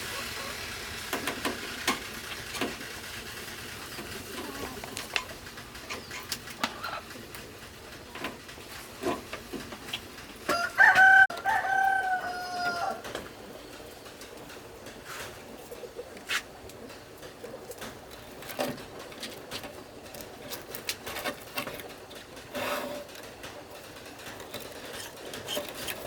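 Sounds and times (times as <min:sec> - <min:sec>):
rooster crowing: 0:10.5 - 0:13.1.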